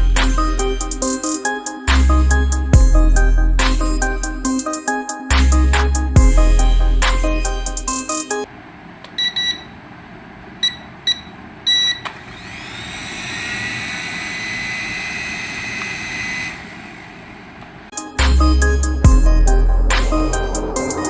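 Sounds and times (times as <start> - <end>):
short electronic beeps: 9.2 - 9.8, 10.6 - 12.1
toy aircraft high whine: 12.3 - 17.4.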